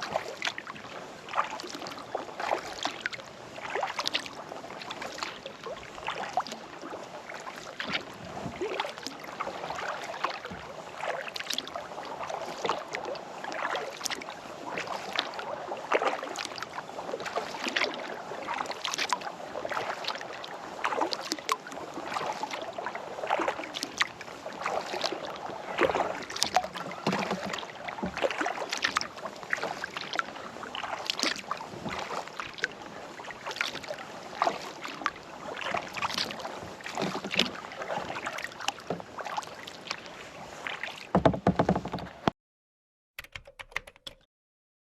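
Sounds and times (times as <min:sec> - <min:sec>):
paddle splashing in water: 0:00.0 - 0:42.3.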